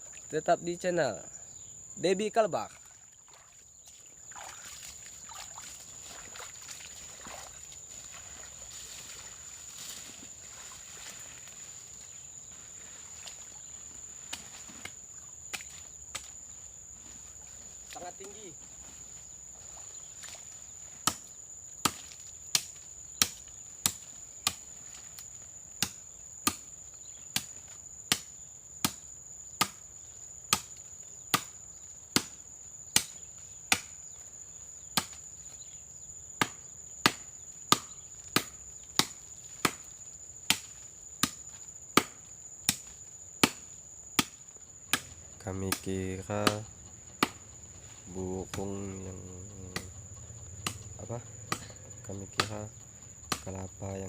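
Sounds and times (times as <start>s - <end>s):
axe chopping into tree trunk: 21.0s - 24.6s, 25.8s - 26.7s, 27.3s - 29.0s, 29.6s - 29.8s, 30.5s - 34.0s, 34.9s - 35.2s, 36.4s - 39.9s, 40.5s - 45.2s, 47.2s - 47.4s, 51.5s - 51.8s.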